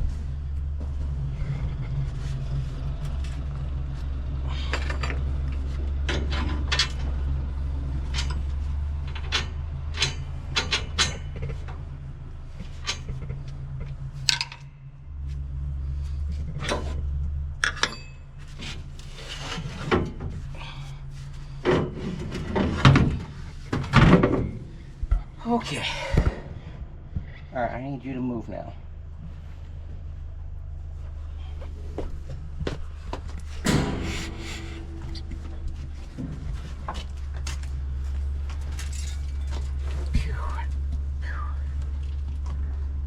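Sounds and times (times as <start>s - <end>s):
steady low rumble: 0.0s - 17.6s, 19.8s - 43.0s
knocks and clanks: 4.5s - 11.9s, 21.4s - 25.2s, 31.9s - 41.0s.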